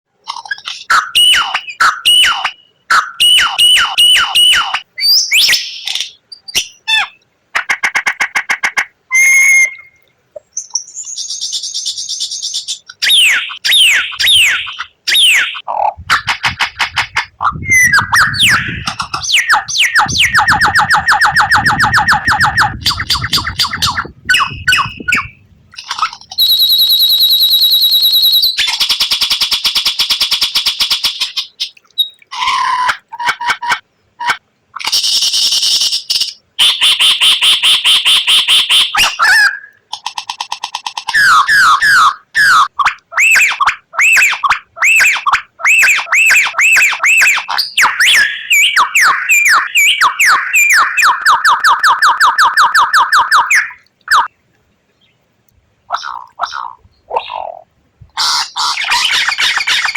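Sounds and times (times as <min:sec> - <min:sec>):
bird singing: 0:00.2 - 0:07.2, 0:09.1 - 0:28.8, 0:38.9 - 0:54.3.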